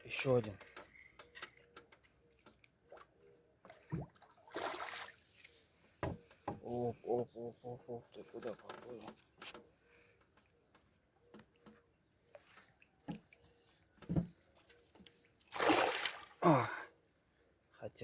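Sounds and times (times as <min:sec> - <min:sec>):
fish splashing in water: 0:02.9 - 0:05.3, 0:15.5 - 0:16.4
short falling grunt: 0:16.4 - 0:16.9.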